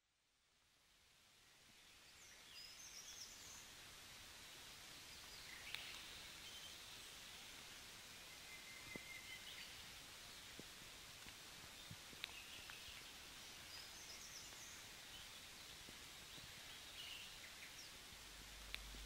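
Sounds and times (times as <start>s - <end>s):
background hiss: 0.0s - 19.0s
faint bird chirps: 8.2s - 10.6s.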